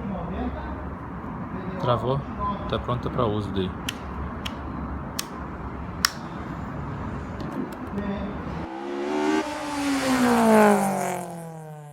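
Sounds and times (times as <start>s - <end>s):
sharp click: 5.2s - 5.4s, 6.0s - 6.4s
engine revving up: 8.4s - 11.9s.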